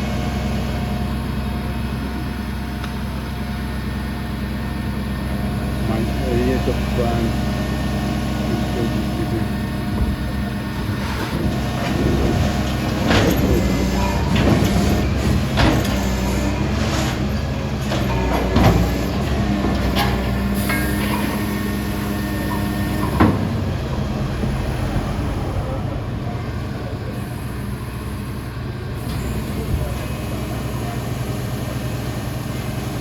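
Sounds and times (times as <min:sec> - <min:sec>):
heavy machinery engine running: 0:00.0 - 0:33.0
sharp metallic clanks: 0:19.9 - 0:21.7.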